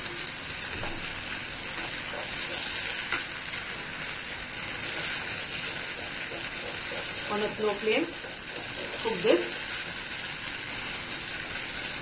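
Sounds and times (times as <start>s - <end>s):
potatoes sizzling in a wok: 0.0s - 12.0s
wooden spatula stirring: 0.9s - 10.0s.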